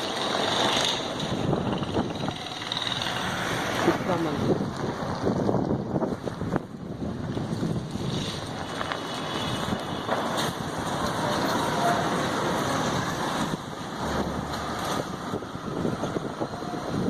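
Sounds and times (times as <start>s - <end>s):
strong wind buffeting microphone: 1.0s - 17.0s.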